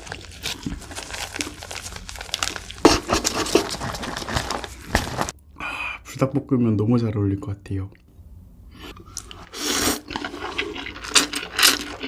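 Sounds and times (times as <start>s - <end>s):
crunching fried chicken crust: 0.0s - 5.3s, 9.4s - 12.0s.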